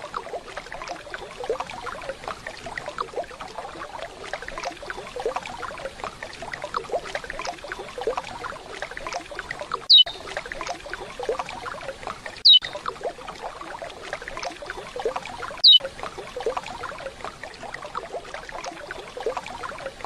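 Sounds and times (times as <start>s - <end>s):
bird whistled calls: 9.9s - 10.2s, 12.4s - 12.8s, 15.6s - 15.8s.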